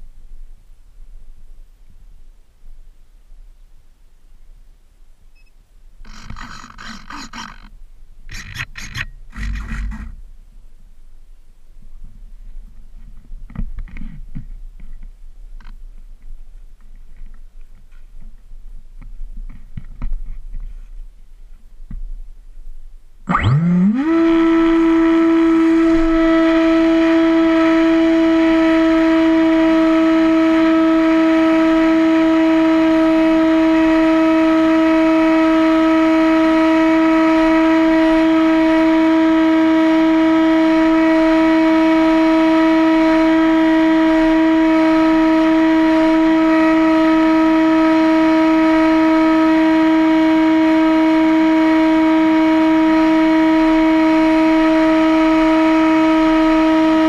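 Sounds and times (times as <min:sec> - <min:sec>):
electric propeller motor whine: 0:06.0 - 0:07.7, 0:08.3 - 0:10.2, 0:23.3 - 0:57.0.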